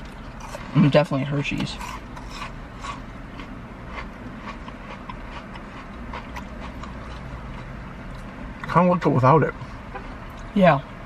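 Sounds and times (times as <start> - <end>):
chewing crunchy food: 0.0 - 0.7, 1.6 - 8.3
low hum inside a car: 0.0 - 11.0.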